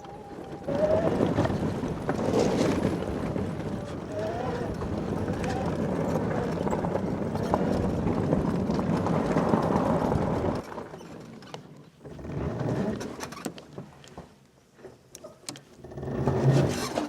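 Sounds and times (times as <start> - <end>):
atv engine rumbling: 0.0 - 10.8.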